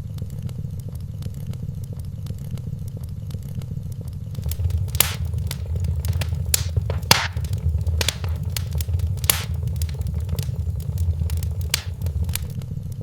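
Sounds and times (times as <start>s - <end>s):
wood fire crackling: 4.4s - 12.6s.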